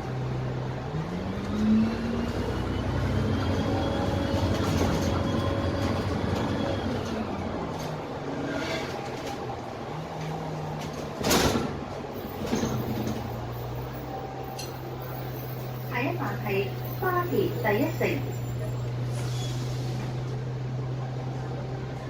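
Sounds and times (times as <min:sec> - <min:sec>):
bus diesel engine drone: 0:00.0 - 0:22.0
air brake hiss: 0:19.1 - 0:20.2.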